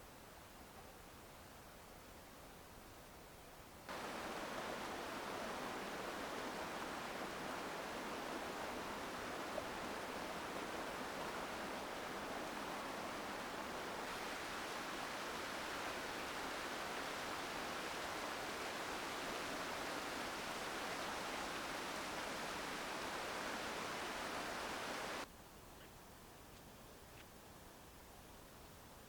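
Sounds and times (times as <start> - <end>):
mountain stream rushing: 3.9 - 25.3.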